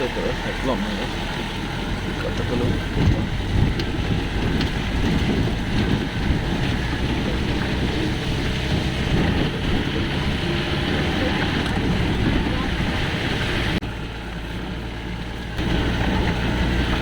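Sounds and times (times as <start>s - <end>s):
jeep engine and road rumble: 0.0s - 17.0s
wind buffeting microphone: 1.2s - 17.0s.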